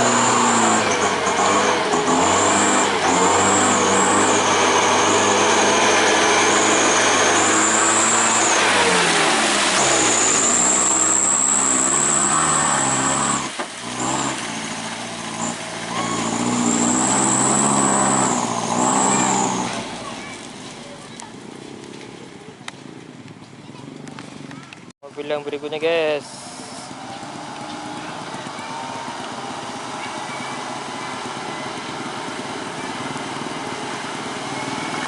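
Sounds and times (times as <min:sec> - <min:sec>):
high whine: 0:00.0 - 0:14.4
truck engine revving: 0:00.0 - 0:22.0, 0:26.2 - 0:35.0.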